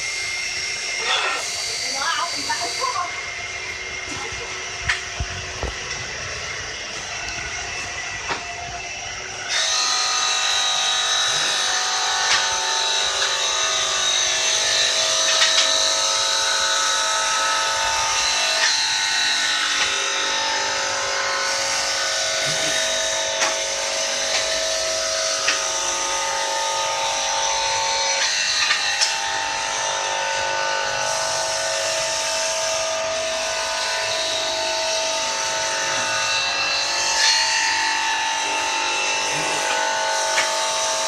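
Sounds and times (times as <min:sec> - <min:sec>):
tile cutting machine whine: 0:00.0 - 0:41.0.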